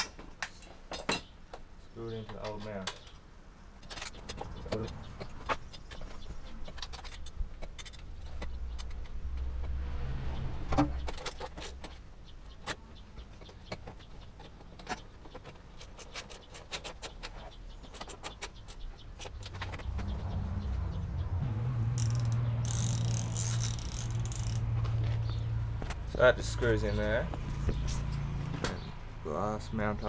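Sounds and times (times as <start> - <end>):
low rumble: 19.6 - 25.8.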